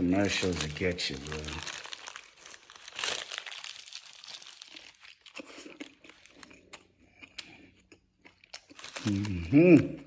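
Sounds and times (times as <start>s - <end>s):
food packaging crinkling: 0.0s - 6.7s, 8.4s - 9.6s.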